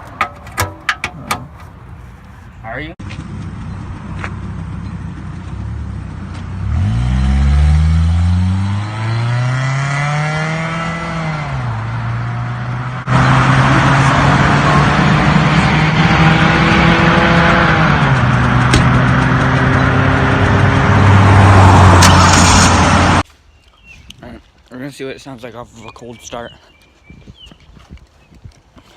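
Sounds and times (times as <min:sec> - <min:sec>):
car engine revving: 0:05.8 - 0:23.2.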